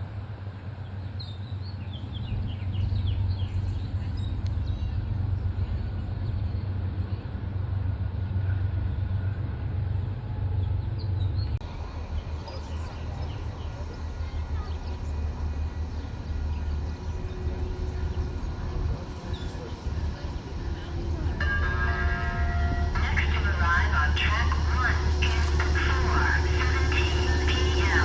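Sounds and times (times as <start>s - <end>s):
birds chirping: 0.8s - 7.3s.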